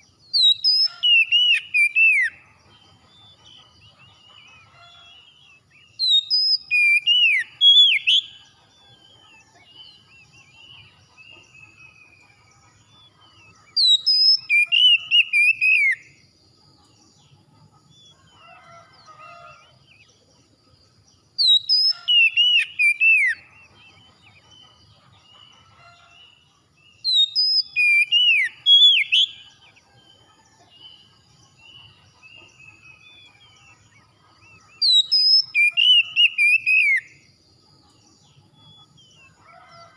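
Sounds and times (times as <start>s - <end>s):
songbird whistling phrases: 0.0s - 2.4s, 6.0s - 8.4s, 13.7s - 16.1s, 21.4s - 23.6s, 27.0s - 29.5s, 34.7s - 37.2s.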